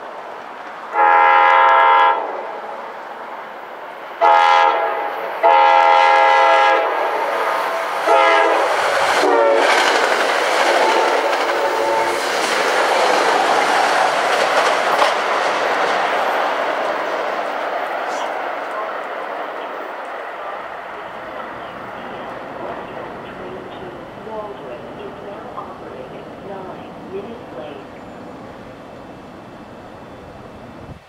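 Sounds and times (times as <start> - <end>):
train cars rushing and clattering: 0.0 - 31.0
train air horn blasts: 0.9 - 2.6, 4.2 - 9.8, 10.8 - 12.2.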